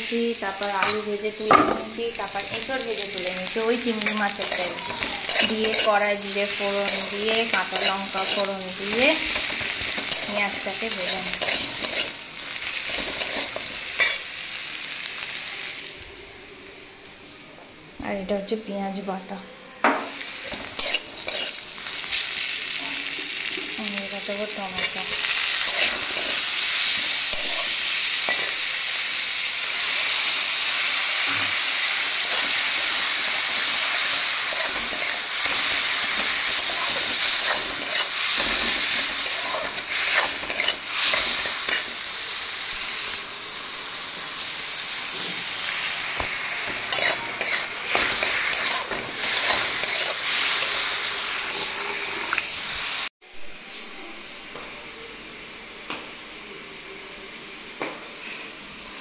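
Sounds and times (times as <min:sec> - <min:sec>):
vegetables sizzling in hot oil: 0:00.0 - 0:19.3, 0:19.9 - 0:53.1
metal spatula scraping pan: 0:03.7 - 0:12.2, 0:20.5 - 0:21.6, 0:33.7 - 0:41.9, 0:46.7 - 0:50.8.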